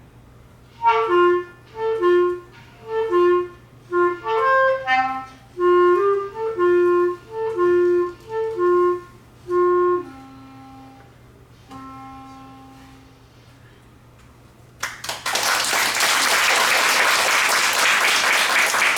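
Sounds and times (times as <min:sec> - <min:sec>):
solo clarinet playing: 0:00.7 - 0:13.5
audience applause: 0:14.8 - 0:18.9.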